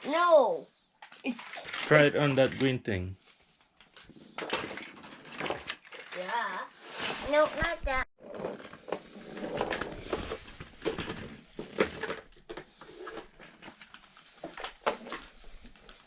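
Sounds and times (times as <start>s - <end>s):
plastic toys clicking: 1.0s - 2.7s, 4.4s - 6.6s.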